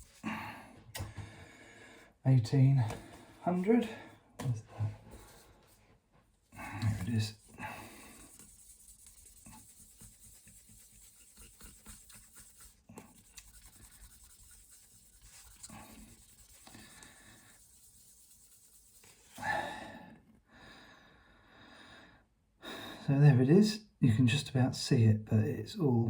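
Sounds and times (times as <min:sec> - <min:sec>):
sanding pad scratching wood: 0:08.0 - 0:19.4.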